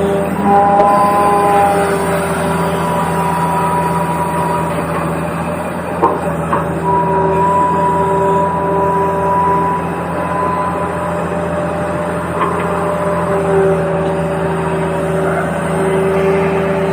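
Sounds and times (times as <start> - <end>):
low even hum: 0.0 - 16.9.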